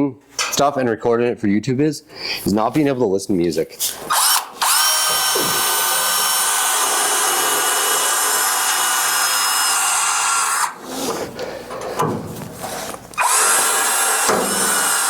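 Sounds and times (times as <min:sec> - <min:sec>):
electric drill running: 0:04.1 - 0:10.8, 0:13.2 - 0:15.0
handling and rubbing noises: 0:10.8 - 0:13.2.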